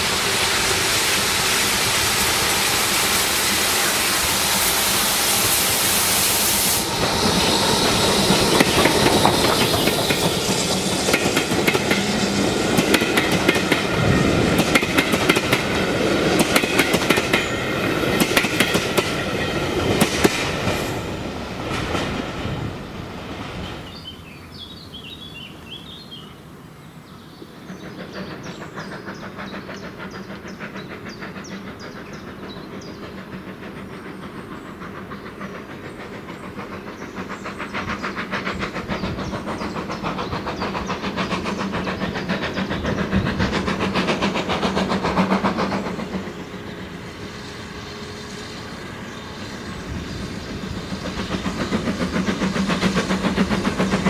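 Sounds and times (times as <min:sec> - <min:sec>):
train wheels clattering over rail joints: 0:07.0 - 0:22.4, 0:27.6 - 0:47.4, 0:48.2 - 0:54.0.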